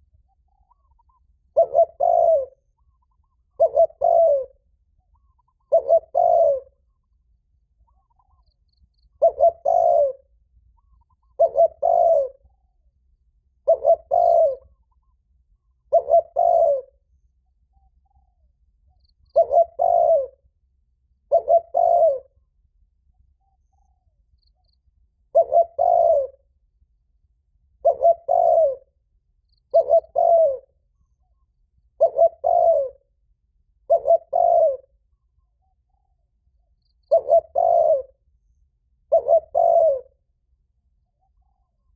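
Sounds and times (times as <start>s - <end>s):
dove cooing: 0.6s - 6.9s, 9.2s - 12.5s, 13.6s - 15.0s, 15.8s - 17.0s, 19.2s - 20.4s, 21.2s - 22.4s, 25.3s - 26.5s, 27.8s - 28.9s, 29.6s - 30.7s, 32.0s - 33.0s, 33.8s - 35.1s, 37.0s - 38.2s, 39.0s - 40.2s.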